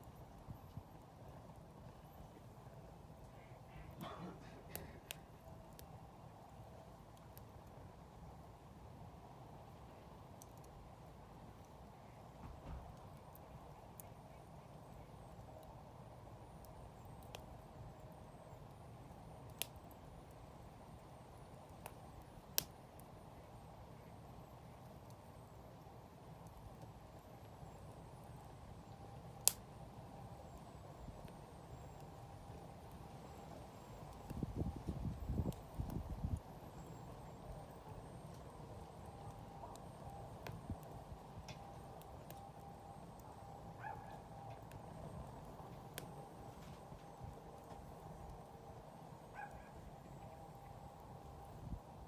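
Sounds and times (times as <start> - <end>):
fire popping: 0.0 - 8.3, 16.5 - 52.0
wood fire low rush: 0.0 - 14.5, 15.2 - 52.0.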